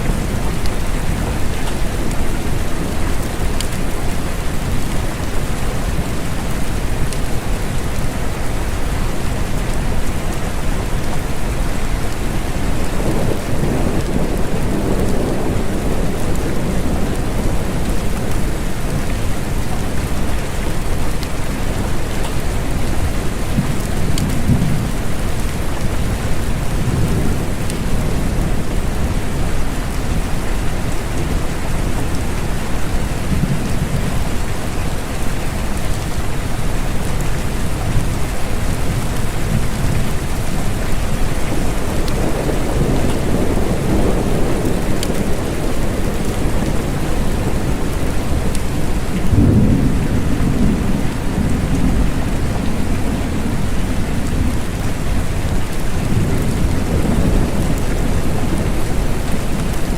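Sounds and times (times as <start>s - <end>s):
steady rain: 0.0s - 59.9s
distant thunder rumbling: 12.7s - 19.1s, 37.9s - 59.9s.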